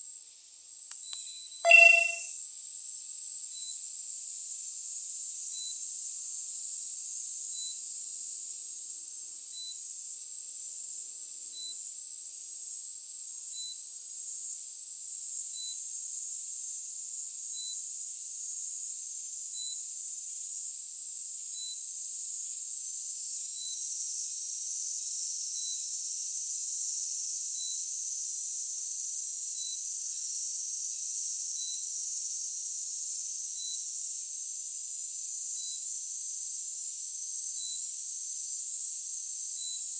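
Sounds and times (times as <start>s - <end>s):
short electronic beep: 1.7s - 2.2s.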